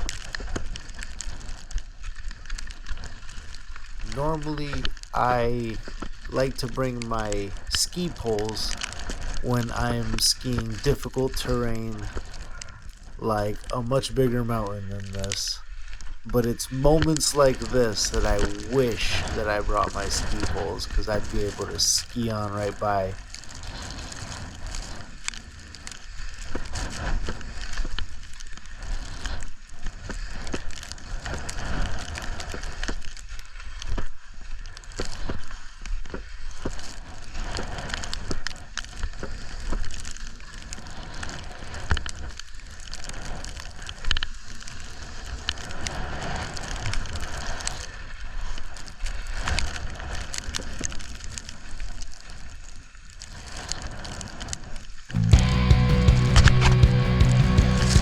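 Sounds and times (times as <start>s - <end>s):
skis scraping over snow: 0.0s - 58.0s
wind buffeting microphone: 16.2s - 25.0s.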